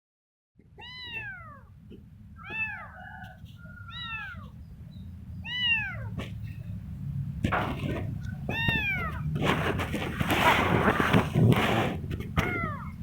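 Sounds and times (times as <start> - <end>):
low background rumble: 0.6 - 13.0
kitten meowing: 0.8 - 1.7, 2.4 - 2.9, 3.9 - 4.6, 5.4 - 6.2, 8.3 - 9.4, 12.4 - 13.0.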